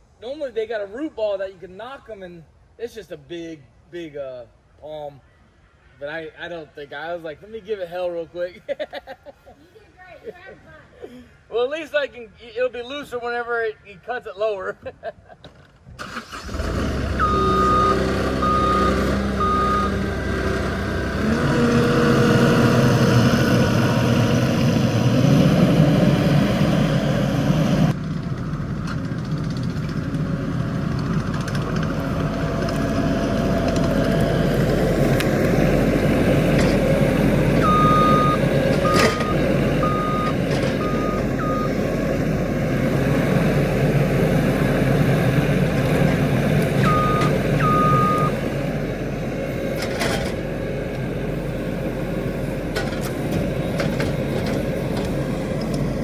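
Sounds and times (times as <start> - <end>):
loader engine under load: 16.0 - 56.0
reversing alarm beeping: 17.2 - 20.0, 37.6 - 41.8, 46.8 - 48.4.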